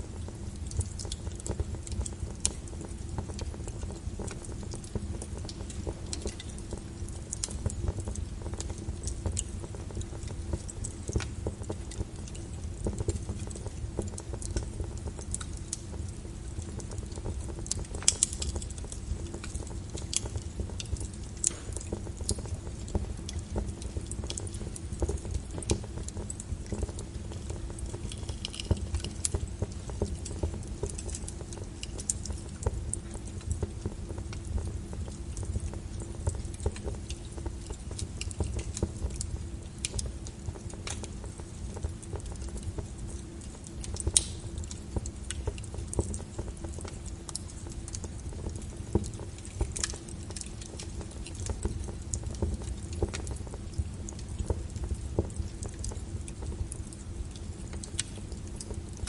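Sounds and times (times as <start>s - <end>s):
fireplace logs crackling and popping: 0.0s - 59.0s
low rumble of fire: 0.0s - 59.0s.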